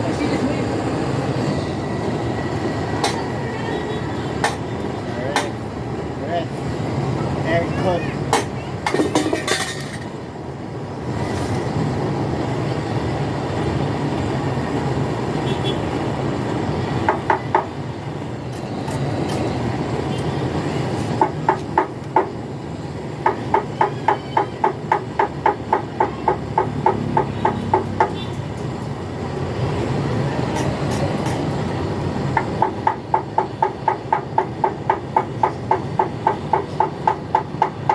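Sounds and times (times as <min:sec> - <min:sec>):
hammer tapping on metal: 0:23.2 - 0:28.2, 0:32.3 - 0:37.9.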